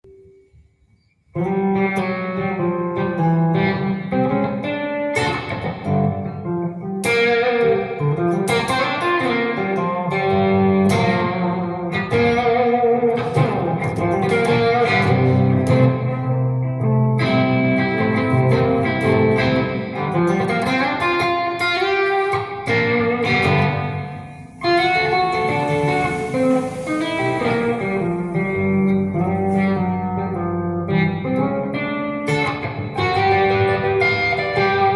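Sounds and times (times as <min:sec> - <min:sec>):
guitar music: 0:01.3 - 0:34.9.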